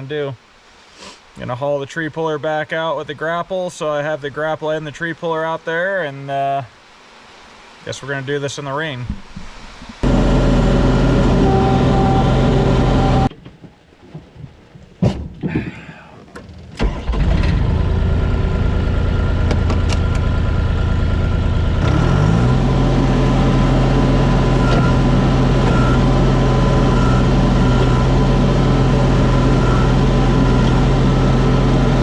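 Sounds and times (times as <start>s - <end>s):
diesel engine starting and idling: 10.0s - 13.3s, 16.4s - 32.0s.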